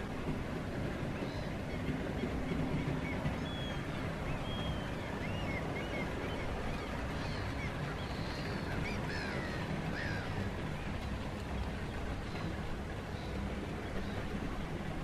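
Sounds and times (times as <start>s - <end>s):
birds calling: 1.2s - 11.0s.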